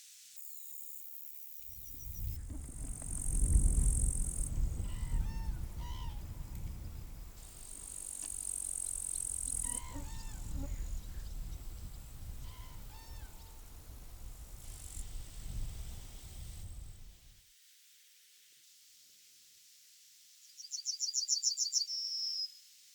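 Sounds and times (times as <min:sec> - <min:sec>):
wind rumble on microphone: 0:01.7 - 0:07.9, 0:08.6 - 0:17.4
insects buzzing: 0:01.7 - 0:17.3
bird song phrase: 0:20.5 - 0:22.6.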